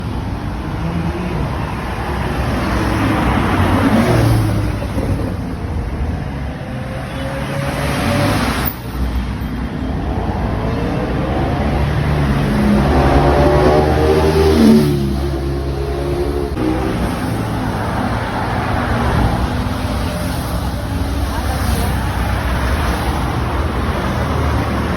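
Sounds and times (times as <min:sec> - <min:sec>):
sports car engines accelerating: 0:10.2 - 0:24.9.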